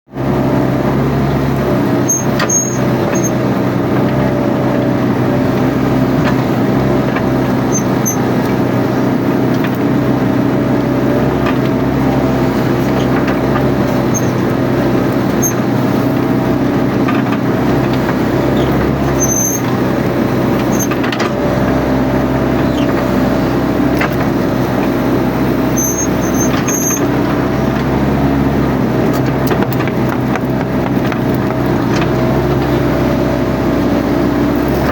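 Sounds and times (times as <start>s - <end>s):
excavator diesel engine running: 0.1s - 34.9s
faint high squeaks: 2.1s - 3.4s, 7.7s - 8.3s, 13.9s - 14.5s, 15.4s - 15.7s, 18.6s - 19.8s, 25.7s - 27.1s.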